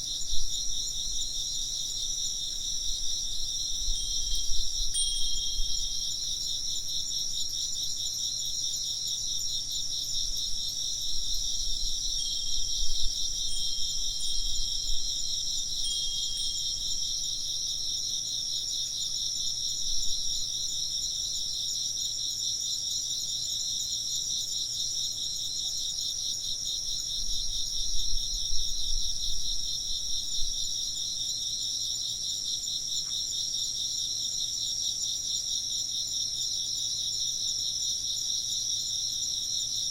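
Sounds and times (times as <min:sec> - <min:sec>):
crickets chirping: 0:00.0 - 0:39.9
faint wind chimes: 0:00.2 - 0:20.6.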